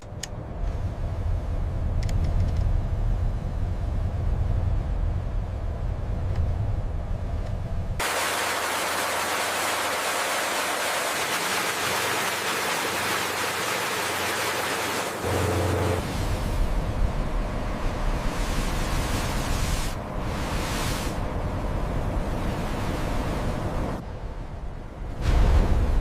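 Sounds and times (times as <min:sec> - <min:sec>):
low rumble: 0:00.0 - 0:08.0, 0:15.2 - 0:26.0.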